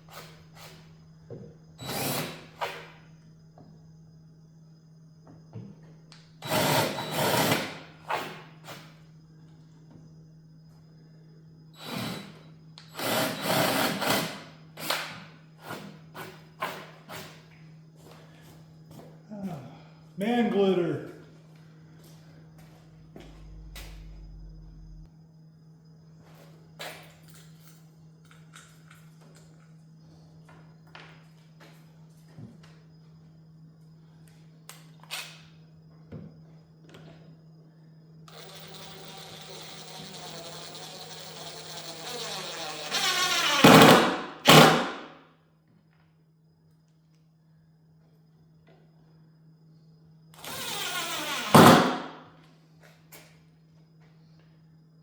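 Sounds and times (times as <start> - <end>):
power drill buzzing: 1.8 - 2.9, 6.4 - 8.8, 11.8 - 15.2, 38.3 - 45.0, 50.4 - 52.1
steady low hum: 17.6 - 26.4
low hum: 22.6 - 25.2.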